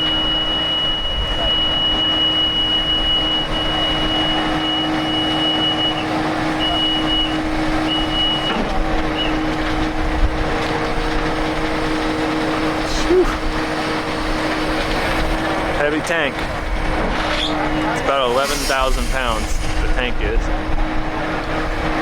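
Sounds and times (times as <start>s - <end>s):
high-pitched warning tone: 0.0s - 8.6s
crane engine running: 0.0s - 22.0s.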